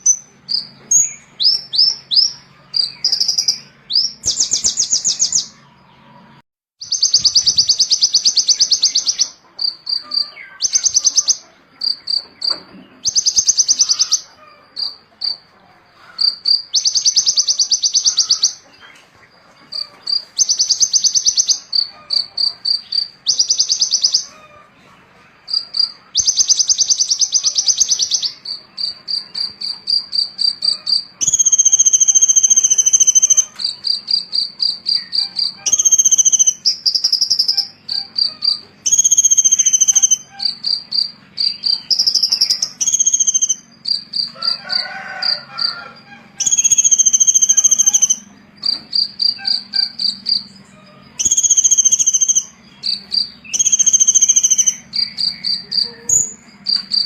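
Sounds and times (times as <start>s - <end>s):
songbird singing trills: 0.0s - 57.0s
bird whistled notes: 6.8s - 15.0s, 25.5s - 44.3s, 46.4s - 48.3s, 51.2s - 57.0s.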